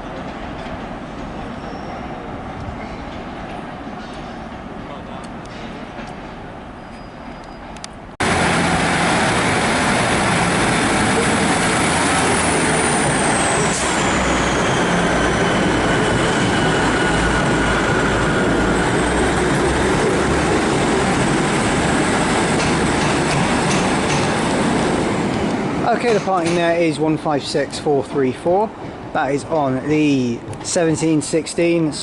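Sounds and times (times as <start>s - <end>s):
diesel train engine under power: 8.2s - 31.4s.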